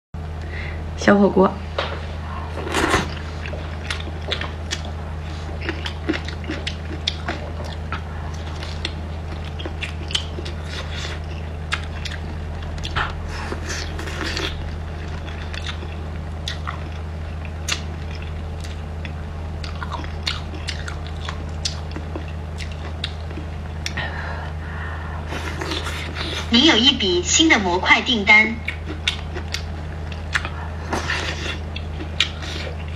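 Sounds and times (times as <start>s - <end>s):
steady low hum: 0.2s - 32.9s
person biting and chewing food: 2.6s - 3.3s, 25.3s - 26.5s.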